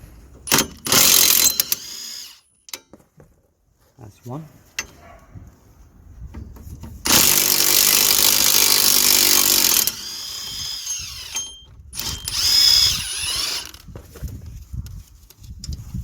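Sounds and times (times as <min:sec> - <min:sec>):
impact wrench hammering: 0:00.5 - 0:02.3, 0:07.1 - 0:13.7.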